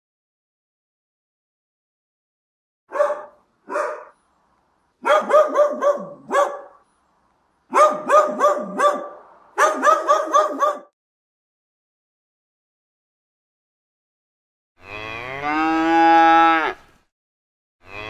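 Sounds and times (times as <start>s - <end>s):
dog barking: 2.9s - 4.2s, 5.0s - 6.8s, 7.7s - 11.0s.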